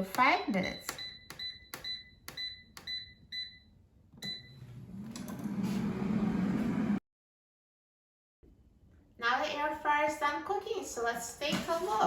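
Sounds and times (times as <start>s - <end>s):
air fryer beeping: 0.6s - 6.5s
air fryer fan hum: 4.2s - 7.0s.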